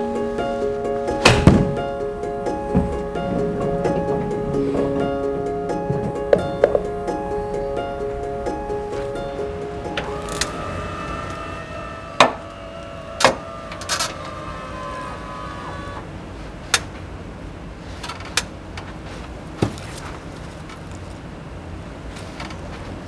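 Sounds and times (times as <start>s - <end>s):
music held notes: 0.0s - 16.2s
golf clubs striking balls: 1.2s - 7.8s.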